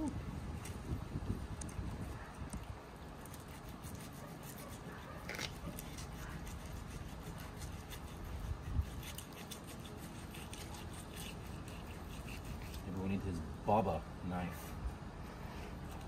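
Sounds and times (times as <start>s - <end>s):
knife scraping fish scales: 3.1s - 13.0s.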